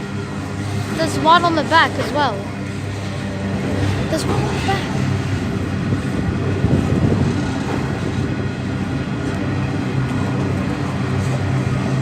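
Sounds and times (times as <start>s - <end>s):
electric train running: 0.0s - 12.0s.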